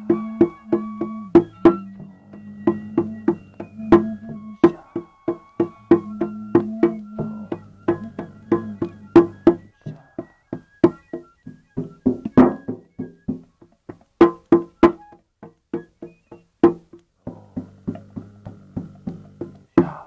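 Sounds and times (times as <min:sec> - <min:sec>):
low sustained drone: 0:00.0 - 0:09.7
hand percussion strokes: 0:00.0 - 0:20.0.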